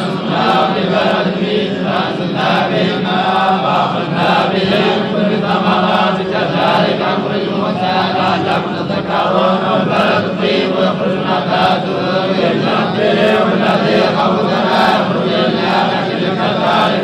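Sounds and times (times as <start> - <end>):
man chanting melodic recitation: 0.0 - 17.0.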